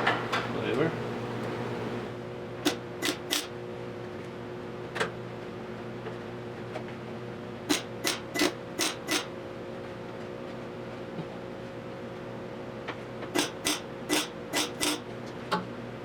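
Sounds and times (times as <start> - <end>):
steady hum: 0.9 - 3.7, 10.7 - 15.1
welding tacks crackling: 2.7 - 3.5.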